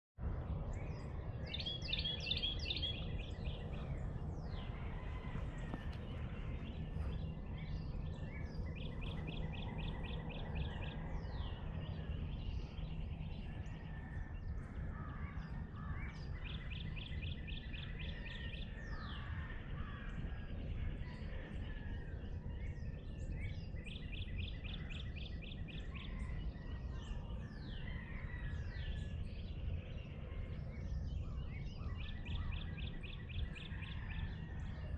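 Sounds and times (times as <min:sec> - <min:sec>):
low outdoor rumble: 0:00.2 - 0:34.9
birds high down-slurred whistles: 0:00.6 - 0:15.4.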